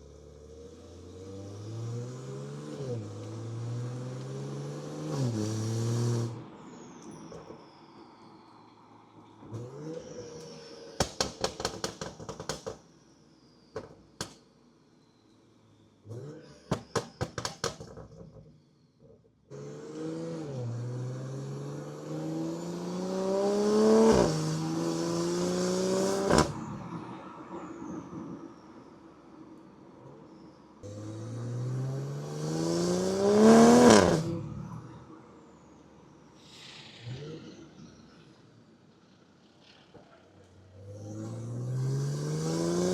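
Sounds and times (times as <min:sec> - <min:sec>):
car engine revving: 0:00.0 - 0:06.5, 0:19.5 - 0:26.9, 0:30.8 - 0:35.2, 0:39.1 - 0:42.9
exhaust pops and crackles: 0:11.0 - 0:12.8, 0:16.7 - 0:18.5, 0:25.9 - 0:26.6.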